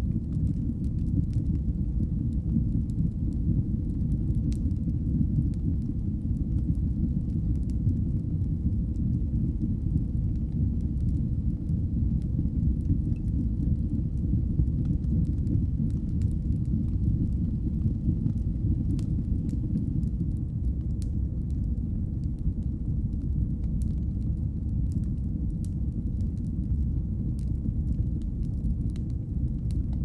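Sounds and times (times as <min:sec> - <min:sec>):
faint crackles and pops: 0:00.0 - 0:30.0
wood fire burning: 0:00.0 - 0:30.0.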